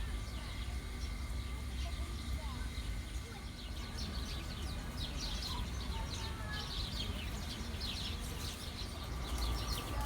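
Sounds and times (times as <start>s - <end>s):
small birds chirping: 2.6s - 10.0s.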